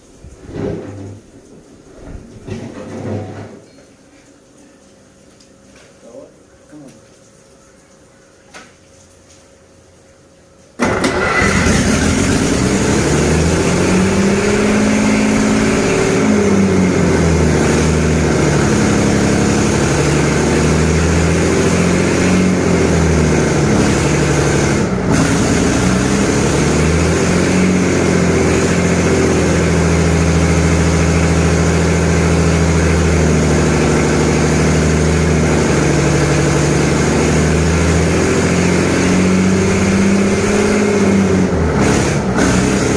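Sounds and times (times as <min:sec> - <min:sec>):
diesel engine starting and running: 0:10.8 - 0:42.9.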